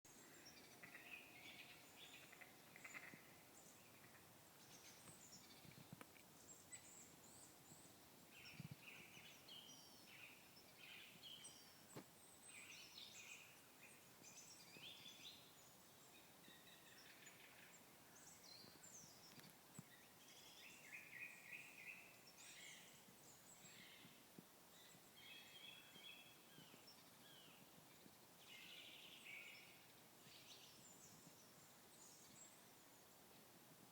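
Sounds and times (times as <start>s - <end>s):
birds chirping and trilling: 0.1s - 5.8s.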